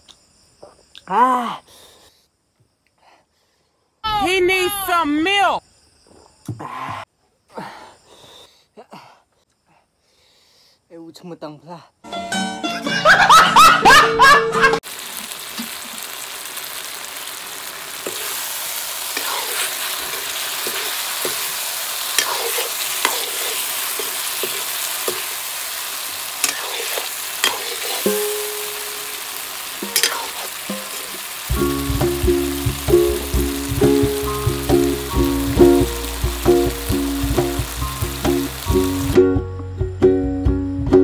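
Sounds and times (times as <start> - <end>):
curry sizzling in pan: 14.8 - 39.2
metal ladle scraping pan: 19.1 - 25.3, 26.4 - 28.2, 29.8 - 31.2.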